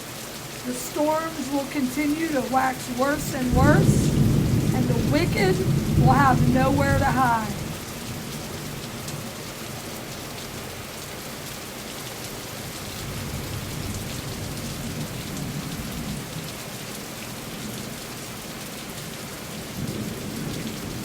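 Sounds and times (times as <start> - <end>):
heavy rain pattering: 0.0 - 21.0
distant thunder rumbling: 0.7 - 8.8.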